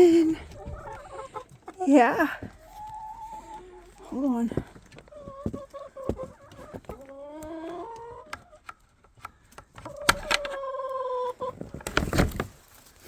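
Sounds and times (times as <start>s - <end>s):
sharp clicks: 8.7s - 10.6s.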